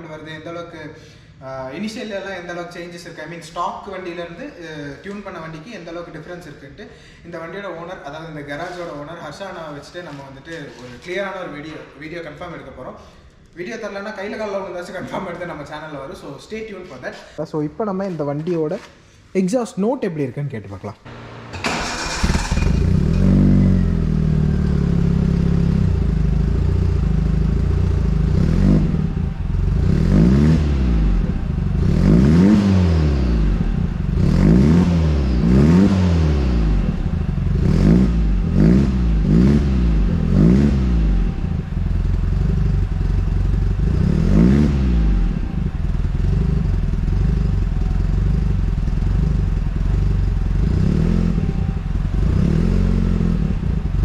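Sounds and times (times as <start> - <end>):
car engine revving: 21.1 - 54.0.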